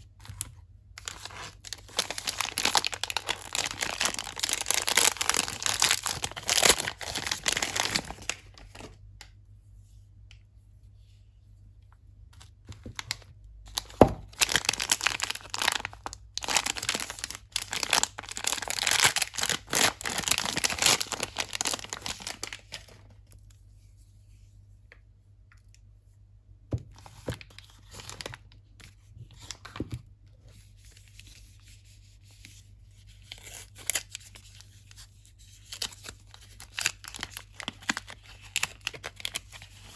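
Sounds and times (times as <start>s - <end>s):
packaging tearing and crinkling: 1.0s - 8.9s, 13.0s - 23.0s, 35.6s - 39.9s.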